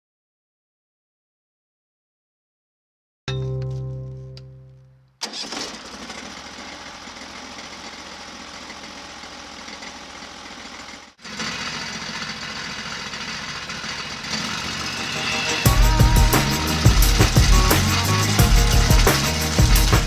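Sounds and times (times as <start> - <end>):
small gasoline engine running: 5.2 - 20.0.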